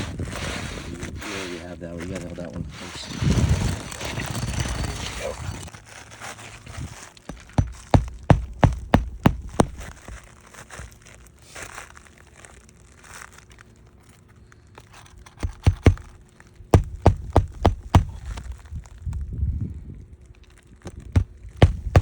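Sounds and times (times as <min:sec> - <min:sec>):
shingle rustling: 0:00.0 - 0:19.2, 0:20.3 - 0:22.0
nails driven into shingle: 0:07.2 - 0:10.2, 0:15.2 - 0:18.6, 0:20.8 - 0:22.0.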